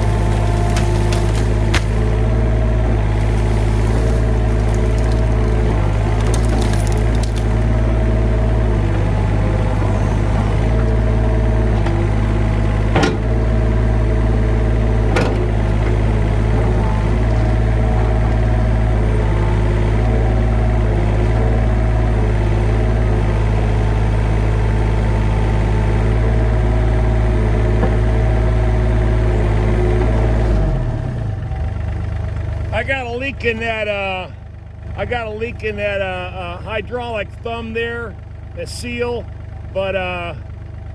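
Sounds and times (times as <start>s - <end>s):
heavy equipment engine running: 0.0s - 40.9s.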